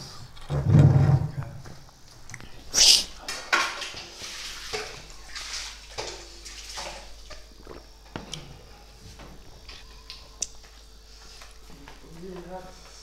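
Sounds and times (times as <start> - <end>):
chewing and wet mouth noises: 9.6 - 11.8.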